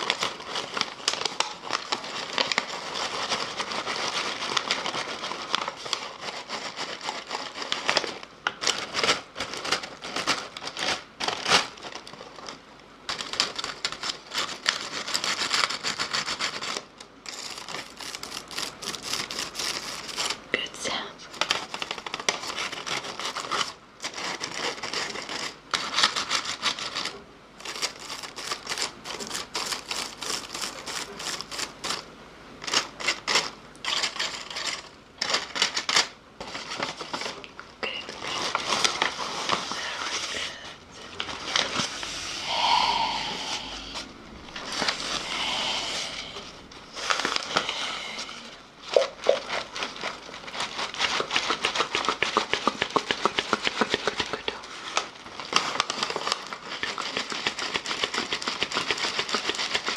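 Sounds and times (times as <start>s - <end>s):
wet mouth clicks: 49.0s - 49.4s.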